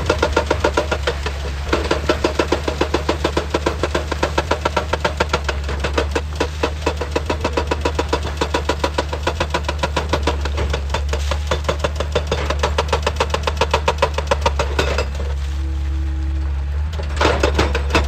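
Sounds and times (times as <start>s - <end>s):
hydraulic breaker hammering rock: 0.0s - 15.3s, 17.1s - 18.0s
diesel engine drone: 0.0s - 18.0s.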